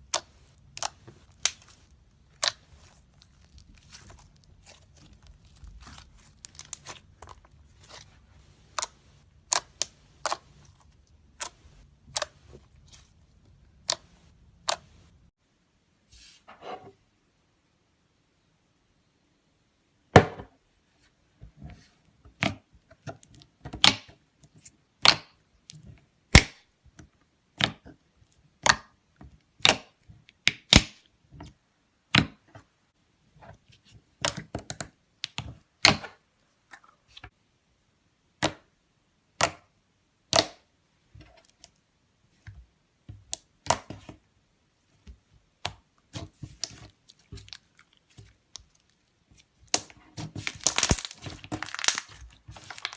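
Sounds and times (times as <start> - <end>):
slime clicking and popping: 0.0 - 7.4, 8.6 - 10.7, 49.6 - 52.9.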